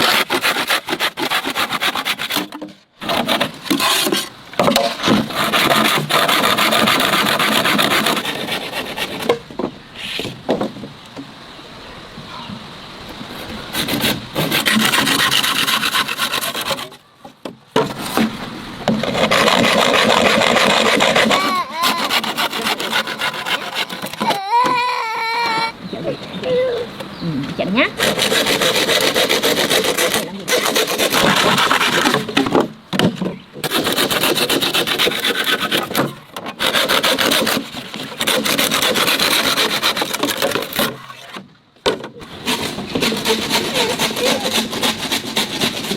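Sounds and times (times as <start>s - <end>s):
rough rasping scraping strokes: 0.0s - 10.4s, 13.2s - 17.1s, 17.8s - 24.8s, 28.0s - 32.7s, 33.6s - 41.5s, 42.2s - 45.9s
rhythmic rasping strokes: 42.4s - 45.9s.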